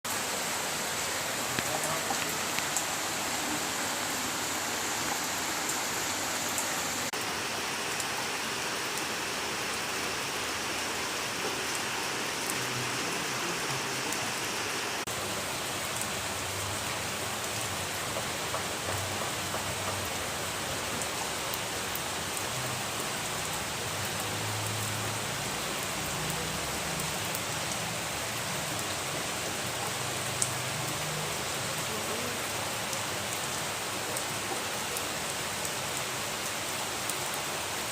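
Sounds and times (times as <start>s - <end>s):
steady rain hiss: 0.1s - 37.9s
raindrops ticking on a surface: 0.9s - 4.2s, 15.0s - 37.9s.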